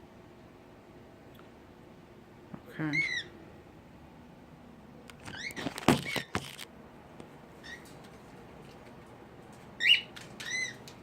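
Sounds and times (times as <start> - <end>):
sharp clicks and rustles: 5.0 - 11.0
cockatiel whistled chirps: 9.8 - 10.8.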